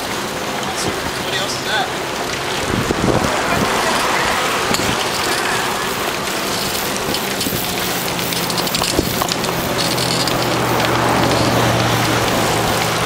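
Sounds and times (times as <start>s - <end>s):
low engine hum: 0.1s - 13.0s
wind noise on microphone: 2.6s - 13.0s.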